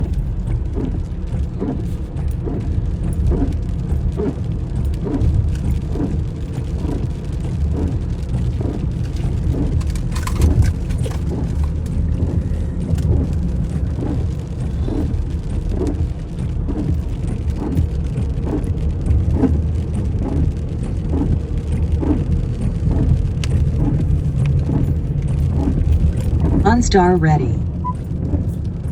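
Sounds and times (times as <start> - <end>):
road noise rumble: 0.0 - 28.9
soft regular pulse: 26.4 - 28.0.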